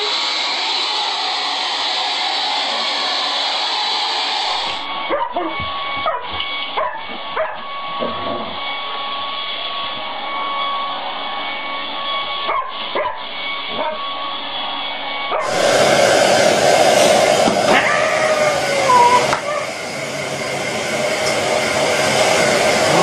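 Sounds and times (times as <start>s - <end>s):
hair dryer whining: 0.0s - 23.0s
dog yips and whimpers: 5.1s - 7.6s, 17.7s - 19.7s.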